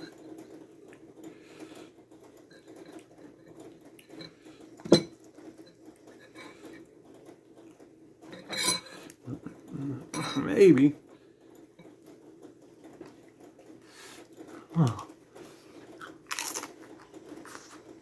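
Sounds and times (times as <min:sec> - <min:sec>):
chewing crunchy chip: 0:15.9 - 0:17.9.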